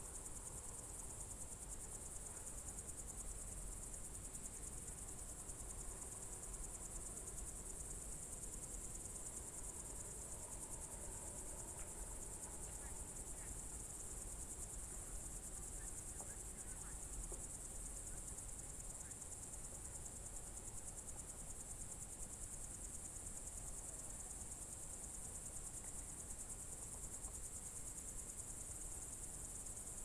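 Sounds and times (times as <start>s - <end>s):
crickets trilling: 7.7s - 19.6s.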